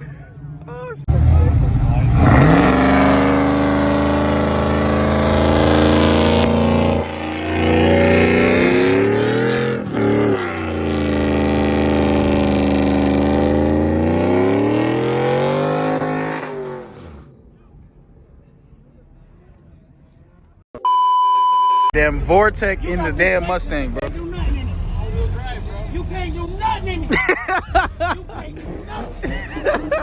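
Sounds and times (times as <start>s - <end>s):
car engine revving: 1.1s - 17.7s.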